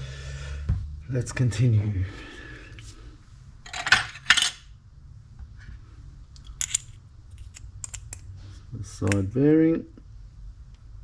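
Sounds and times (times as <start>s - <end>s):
metal parts clinking: 3.7s - 4.6s, 6.5s - 8.0s.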